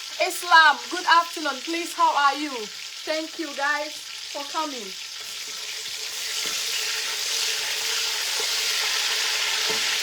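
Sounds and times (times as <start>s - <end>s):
fish sizzling in hot oil: 0.0s - 10.0s.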